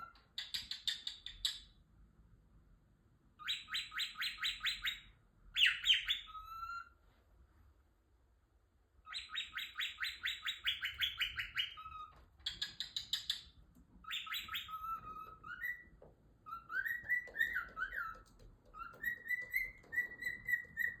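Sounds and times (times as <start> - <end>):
cockatiel chirping: 0.0 - 1.8, 3.4 - 7.0, 9.0 - 21.0
cockatiel whistling: 3.4 - 7.0, 9.0 - 21.0.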